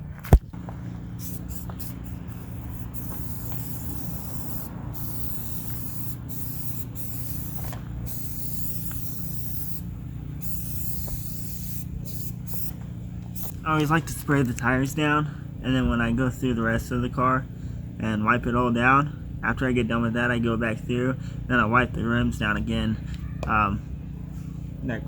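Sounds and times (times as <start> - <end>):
steady low hum: 0.0 - 25.0
sprayer hissing: 0.7 - 14.1.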